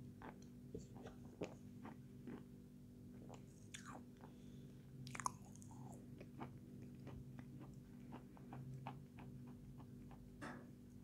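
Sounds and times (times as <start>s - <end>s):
chewing with mouth closed: 0.2s - 2.5s, 3.2s - 4.4s, 5.0s - 10.3s.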